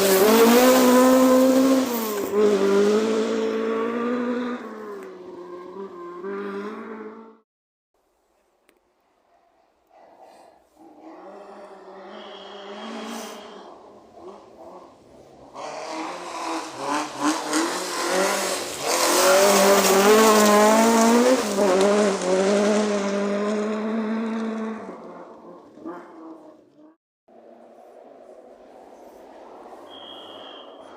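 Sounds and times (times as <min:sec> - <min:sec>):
rally car engine passing at speed: 0:00.0 - 0:07.4, 0:11.3 - 0:26.4.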